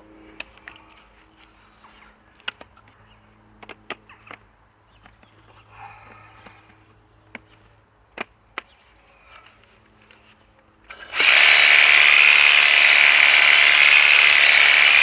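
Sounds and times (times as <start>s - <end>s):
pressure washer running: 10.9s - 15.0s.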